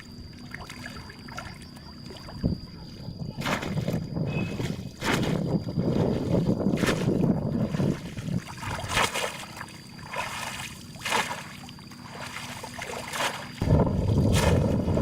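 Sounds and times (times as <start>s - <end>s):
water splashing and trickling: 0.0s - 2.6s, 3.4s - 15.0s
wind rumble on microphone: 1.5s - 9.2s, 13.6s - 15.0s.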